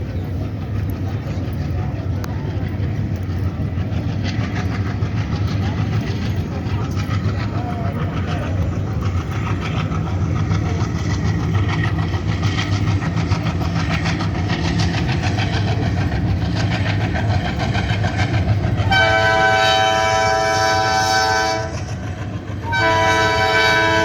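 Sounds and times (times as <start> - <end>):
wheel clatter on rails: 0.0 - 19.7
train rumbling over bridge: 0.0 - 24.0
train horn: 18.8 - 22.0, 22.6 - 24.0.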